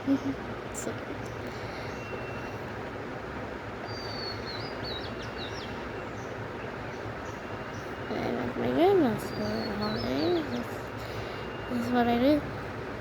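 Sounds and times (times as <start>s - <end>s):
steady background noise: 0.0s - 13.0s
small bird chirping: 8.9s - 10.8s.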